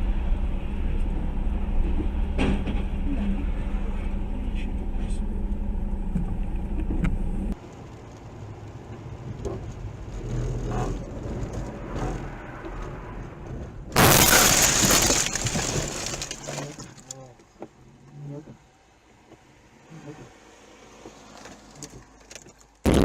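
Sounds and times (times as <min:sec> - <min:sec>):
vehicle running on road: 0:00.0 - 0:23.0
car crash: 0:11.8 - 0:17.1
glass breaking: 0:14.0 - 0:17.0.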